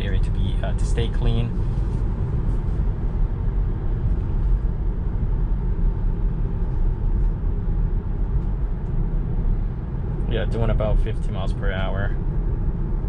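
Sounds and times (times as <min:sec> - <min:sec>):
road and tyre noise in car: 0:00.0 - 0:13.0.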